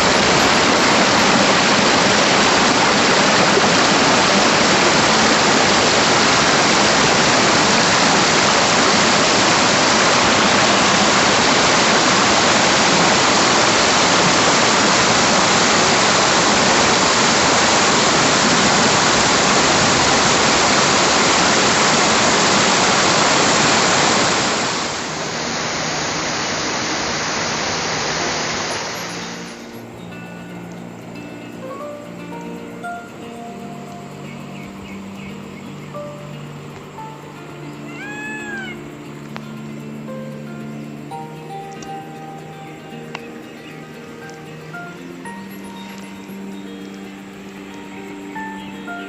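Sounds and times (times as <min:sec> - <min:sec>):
waterfall pouring and splashing: 0:00.0 - 0:29.9.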